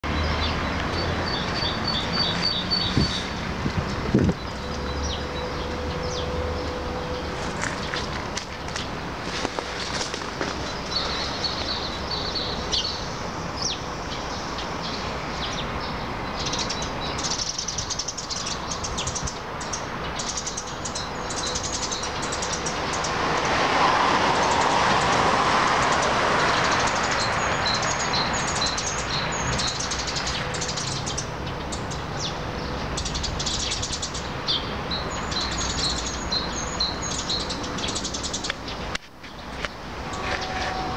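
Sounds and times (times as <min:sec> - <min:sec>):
small birds chirping: 0:00.0 - 0:23.6, 0:24.3 - 0:40.9
steady rushing noise: 0:21.6 - 0:30.6.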